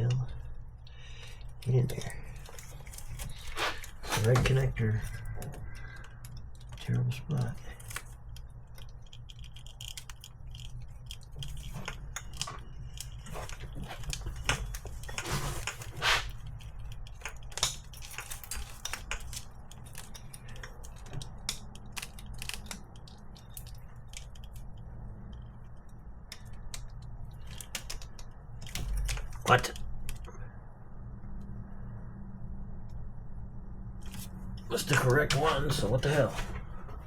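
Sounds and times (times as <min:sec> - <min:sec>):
rustling of wiring harness: 0:00.0 - 0:30.3, 0:34.0 - 0:37.0
low steady hum: 0:00.0 - 0:37.0
plastic connectors clicking and rattling: 0:01.2 - 0:25.6, 0:26.2 - 0:30.3.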